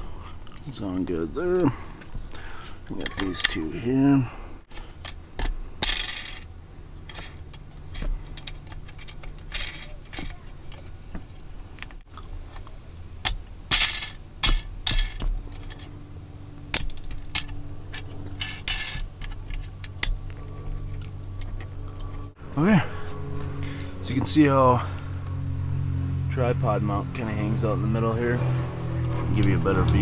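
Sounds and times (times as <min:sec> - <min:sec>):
faint low hum: 0:00.0 - 0:30.0
metal hardware clinking: 0:02.9 - 0:03.8, 0:04.7 - 0:16.0, 0:16.6 - 0:22.4
scraping rattles: 0:04.6 - 0:22.4.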